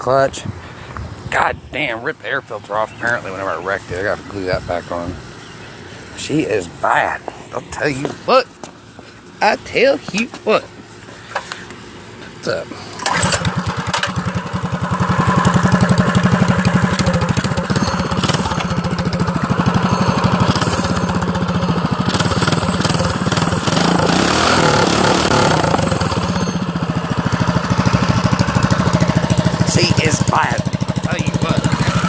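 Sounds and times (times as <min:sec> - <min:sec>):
small engine chugging: 0:12.3 - 0:32.0.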